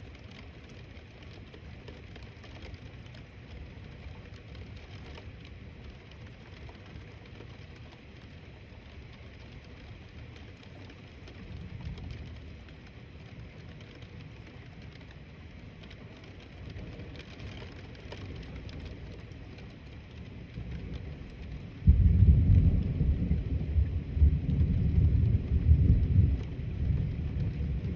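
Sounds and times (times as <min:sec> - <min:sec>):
steady rain falling: 0:00.0 - 0:27.9
distant thunder rumbling: 0:20.6 - 0:27.9.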